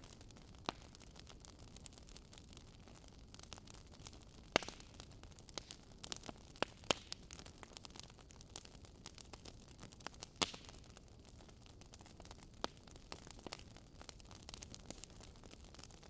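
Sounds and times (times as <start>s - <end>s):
wood fire crackling: 0.0s - 16.0s
sharp fire pops: 4.5s - 7.9s, 10.0s - 10.8s.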